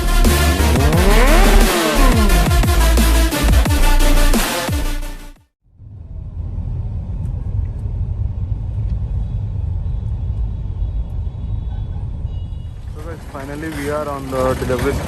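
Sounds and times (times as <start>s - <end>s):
motor vehicle rumble: 0.0s - 4.3s, 5.7s - 15.0s
music: 0.0s - 5.5s.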